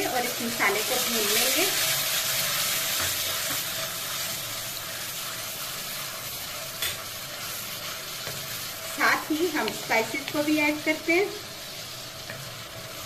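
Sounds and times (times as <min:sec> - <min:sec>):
paste sizzling in hot oil: 0:00.0 - 0:13.0
wooden spatula stirring: 0:04.8 - 0:13.0.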